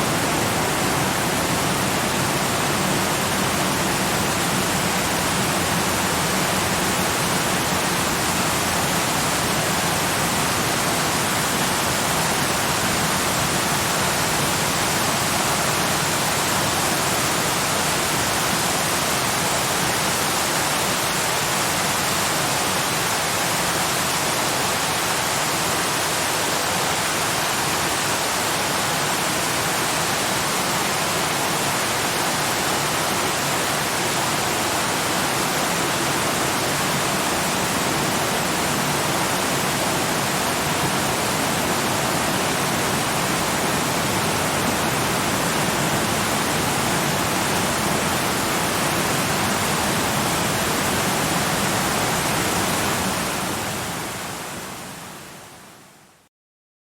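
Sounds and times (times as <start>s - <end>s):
waterfall rushing: 0.0s - 55.5s.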